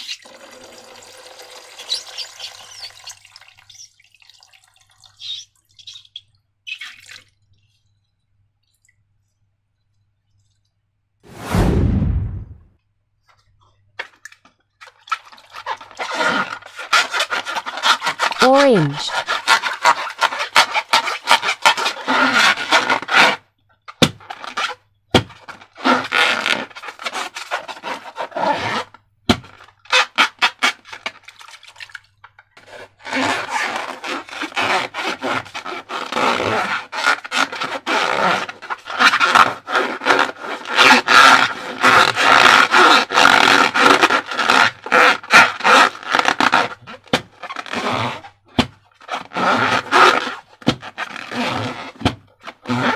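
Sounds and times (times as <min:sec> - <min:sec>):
rubber balloon squeaking: 0:01.7 - 0:03.9, 0:15.6 - 0:23.4, 0:24.0 - 0:30.8, 0:33.0 - 0:52.9
rubber scraping: 0:11.3 - 0:12.7, 0:15.3 - 0:23.4, 0:32.6 - 0:52.9.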